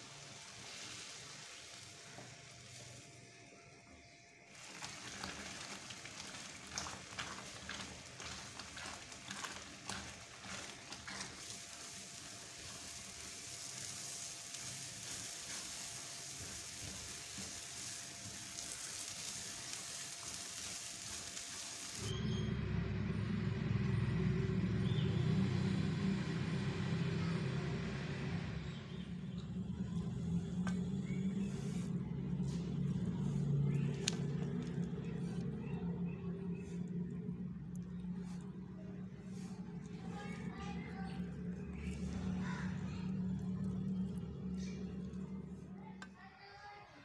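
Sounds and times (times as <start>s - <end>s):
food sizzling in a pan: 0.0s - 3.3s, 4.5s - 22.1s
low steady hum: 0.0s - 46.5s
spatula scraping taps: 6.1s - 12.0s.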